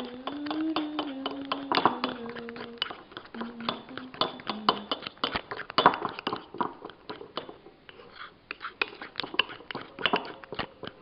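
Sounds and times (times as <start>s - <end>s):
utensil clinking against bowl: 0.0s - 11.0s.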